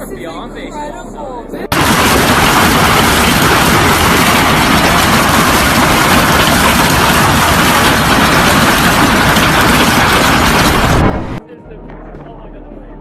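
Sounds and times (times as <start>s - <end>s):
heavy hail pounding: 1.7s - 11.4s.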